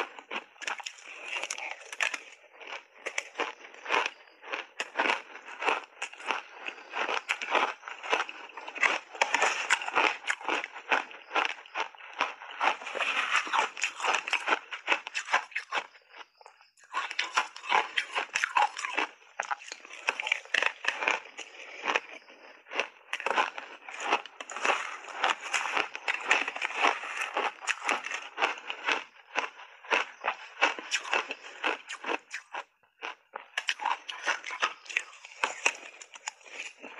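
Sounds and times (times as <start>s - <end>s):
ice being crunched while chewing: 0.0s - 36.9s.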